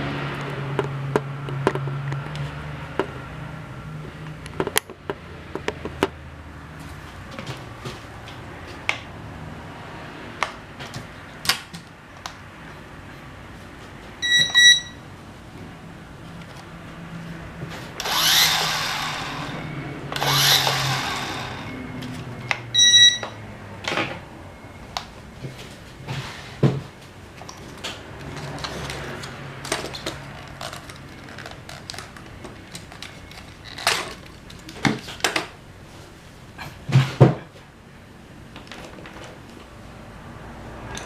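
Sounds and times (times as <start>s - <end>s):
short electronic beep: 14.2s - 15.0s, 21.7s - 23.4s
plastic parts and tools clicking: 27.4s - 35.5s.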